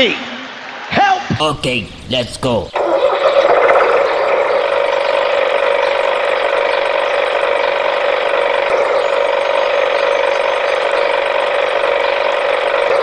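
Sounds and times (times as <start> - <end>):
toy vehicle motor humming: 5.3 - 13.0.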